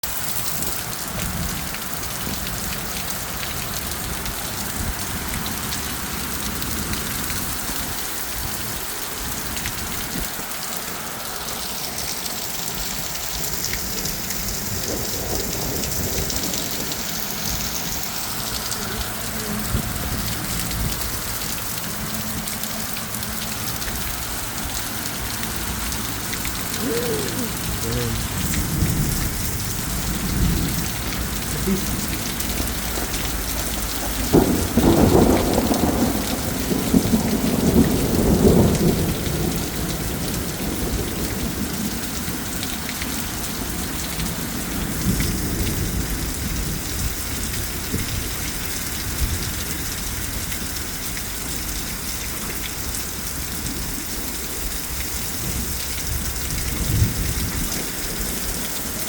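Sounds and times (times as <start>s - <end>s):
heavy rain falling: 0.0s - 59.0s
low rumble of thunder: 12.7s - 51.0s, 53.2s - 59.0s.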